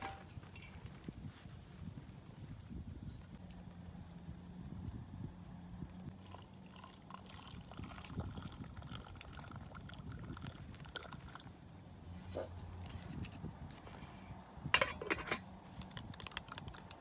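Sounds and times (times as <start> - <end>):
water pouring: 6.2 - 11.5.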